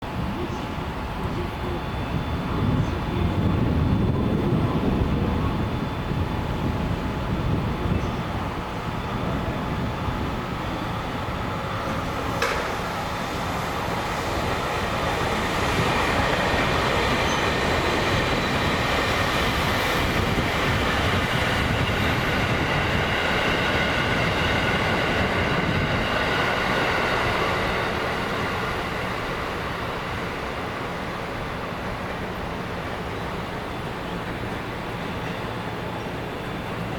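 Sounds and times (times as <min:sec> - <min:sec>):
electric train rumbling on track: 0:00.0 - 0:36.9.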